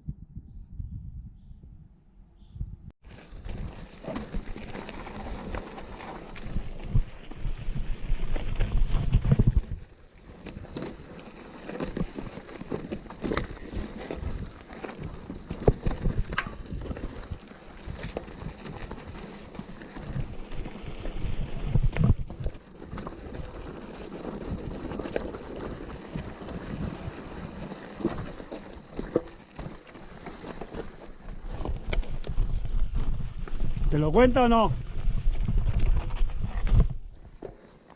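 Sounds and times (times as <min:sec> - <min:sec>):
wind buffeting microphone: 0:00.0 - 0:02.9, 0:20.1 - 0:22.6, 0:31.3 - 0:37.3
bike tyre rumble on dirt: 0:03.0 - 0:37.9.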